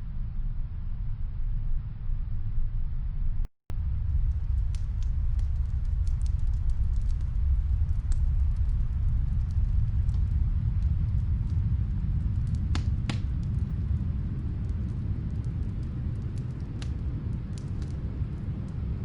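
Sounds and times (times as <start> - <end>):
snowstorm wind rumbling: 3.7 - 19.0
fireplace crackles: 3.8 - 19.0
sharp fire pops: 4.0 - 19.0.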